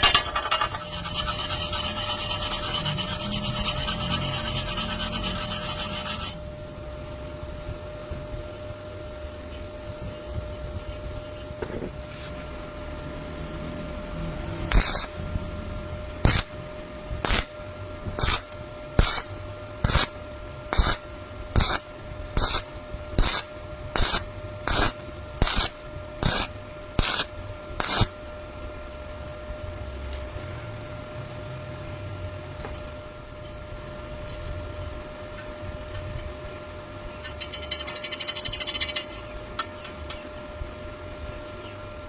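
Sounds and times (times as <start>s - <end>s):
welding arc bursts: 0.0s - 6.4s, 14.7s - 15.2s, 16.2s - 16.6s, 17.2s - 17.6s, 18.2s - 28.2s
low machine hum: 0.0s - 42.0s.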